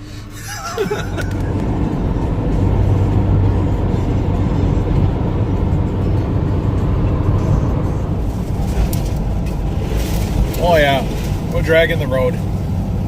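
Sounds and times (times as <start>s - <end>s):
car engine drone: 0.0s - 13.0s
road rumble: 0.0s - 13.0s.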